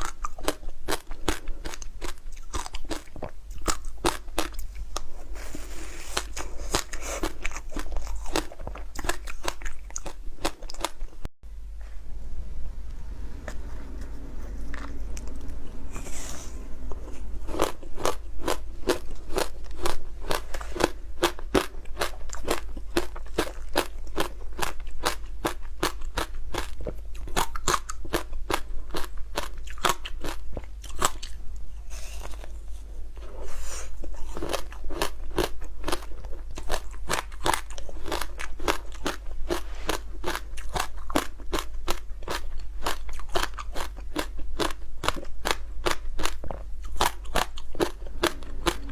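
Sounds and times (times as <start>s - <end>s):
chewing icy crunches: 0.0s - 5.2s, 6.0s - 11.0s, 17.4s - 31.4s, 34.0s - 48.9s.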